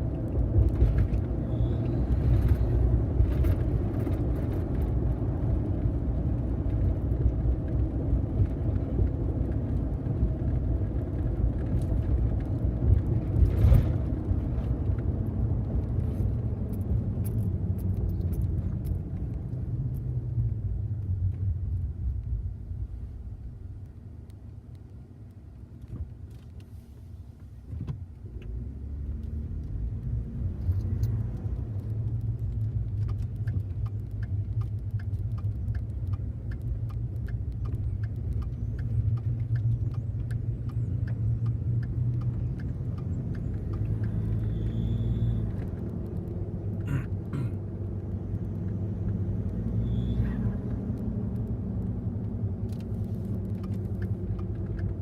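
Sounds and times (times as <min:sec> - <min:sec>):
faint short chirp: 0:44.4 - 0:45.4.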